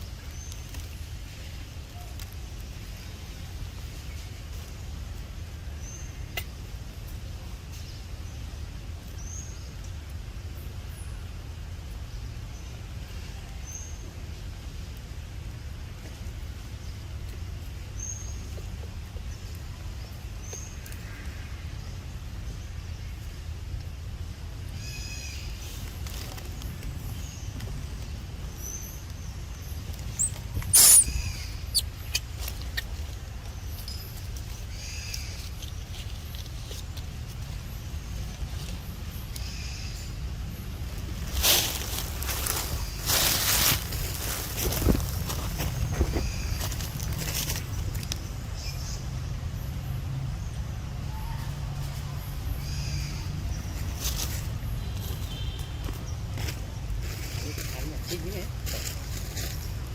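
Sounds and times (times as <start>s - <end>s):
steady low rumble: 0.0s - 55.0s
monkey shrill squeal: 30.2s - 31.9s.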